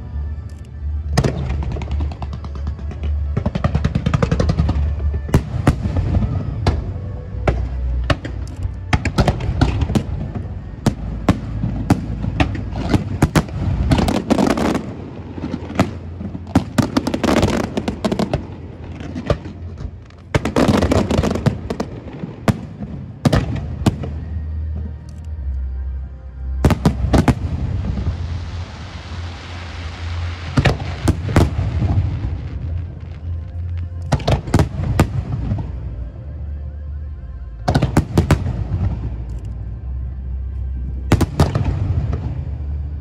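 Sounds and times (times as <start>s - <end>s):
fireworks crackling: 0.8s - 25.0s, 26.6s - 36.0s
fireworks bursts and bangs: 1.1s - 24.3s, 26.6s - 33.4s.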